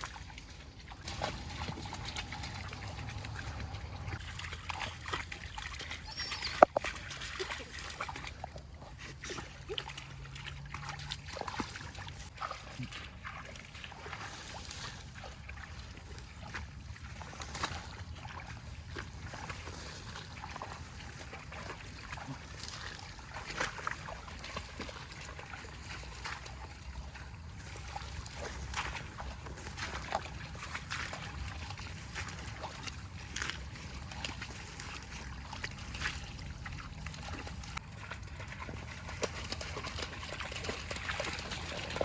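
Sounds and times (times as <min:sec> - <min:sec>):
water splashing and sloshing: 0:00.0 - 0:42.0
steady low rumble: 0:01.1 - 0:04.6.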